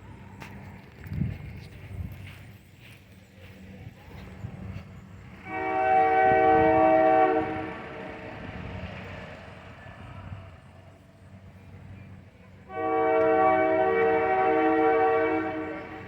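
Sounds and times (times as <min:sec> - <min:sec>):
locomotive air horn: 0:05.4 - 0:08.8, 0:12.6 - 0:16.0.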